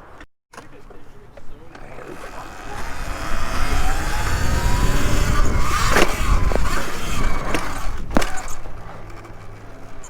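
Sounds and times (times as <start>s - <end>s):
faint rising motor whine: 1.8s - 10.0s
wind rumble on microphone: 2.4s - 8.8s.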